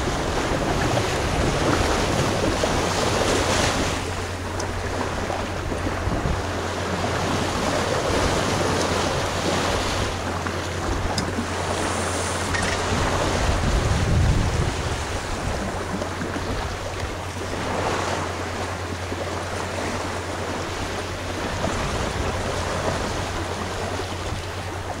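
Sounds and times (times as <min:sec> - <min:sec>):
water rushing along boat hull: 0:00.0 - 0:25.0
wind buffeting microphone: 0:00.0 - 0:25.0.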